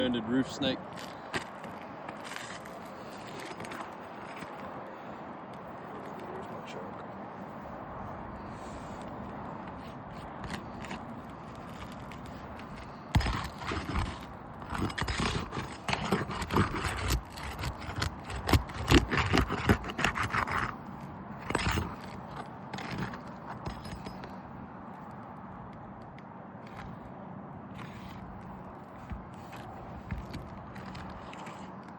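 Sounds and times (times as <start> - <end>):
scraping and knocking on roofing: 9.6 - 24.4, 27.7 - 31.9.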